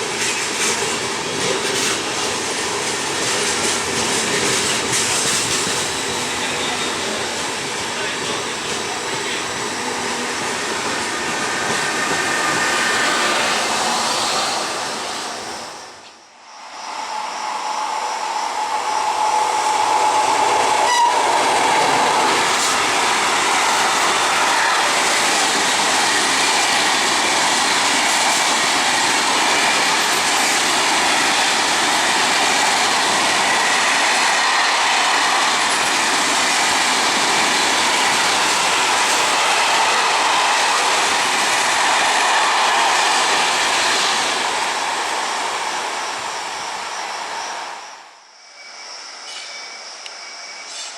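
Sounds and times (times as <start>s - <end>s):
train wheels on rail: 0.0s - 50.9s.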